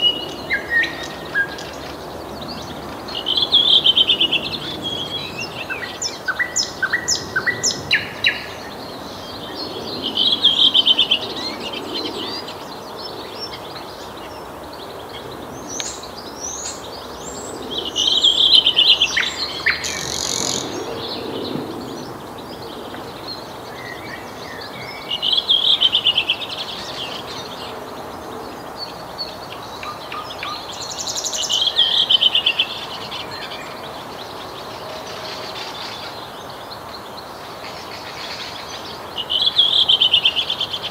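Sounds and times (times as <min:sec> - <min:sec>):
nightingale singing: 0:14.8 - 0:21.3.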